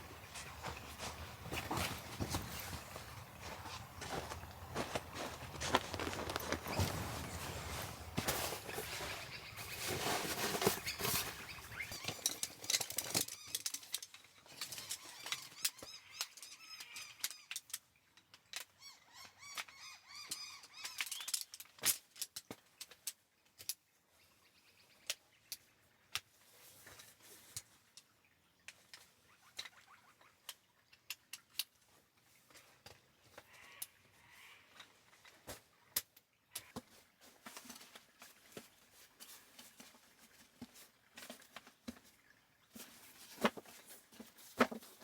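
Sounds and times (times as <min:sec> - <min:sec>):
small birds chirping: 0:00.0 - 0:12.6
rustling of camping gear: 0:00.0 - 0:15.6, 0:26.3 - 0:28.0, 0:36.6 - 0:45.0.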